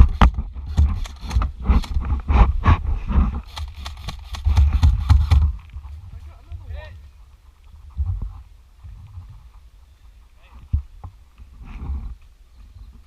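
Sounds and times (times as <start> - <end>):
gear knocking and scraping: 0.0 - 6.0.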